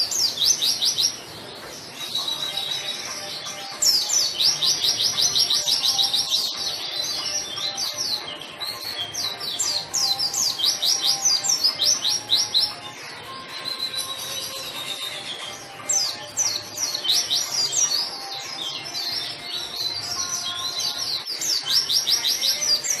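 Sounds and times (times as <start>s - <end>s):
soft bird twittering: 0.0s - 23.0s.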